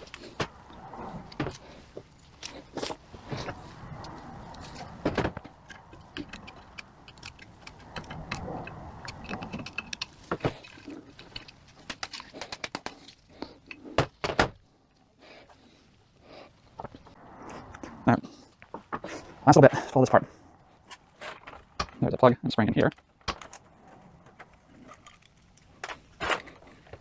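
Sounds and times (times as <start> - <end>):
metal parts and tools clinking: 2.2 - 14.6, 20.8 - 22.1, 22.8 - 27.0.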